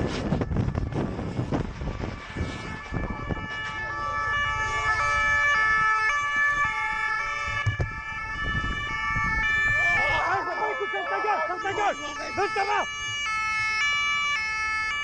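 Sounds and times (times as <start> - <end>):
engine and road noise: 0.0 - 15.0
two-tone police siren: 0.0 - 15.0.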